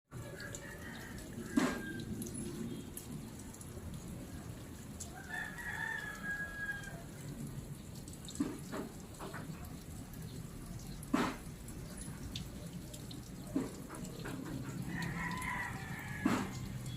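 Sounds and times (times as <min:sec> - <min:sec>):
rooster crowing: 0:00.2 - 0:02.1, 0:05.1 - 0:07.1, 0:14.8 - 0:16.9.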